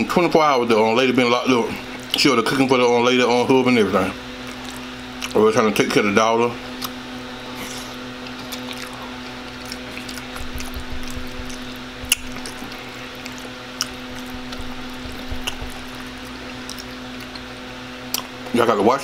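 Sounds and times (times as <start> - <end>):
low hum: 7.4 - 18.0
spaghetti slurping and chewing: 7.8 - 17.5.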